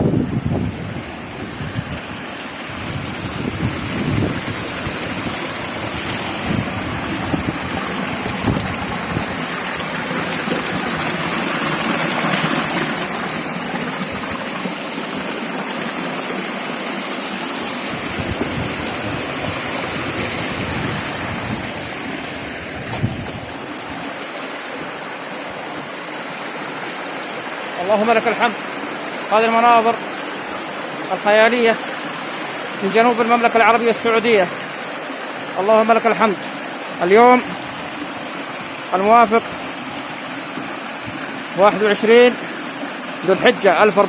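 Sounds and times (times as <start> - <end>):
wind buffeting microphone: 0.0 - 9.9, 17.8 - 24.2
stream water rushing: 0.0 - 44.0.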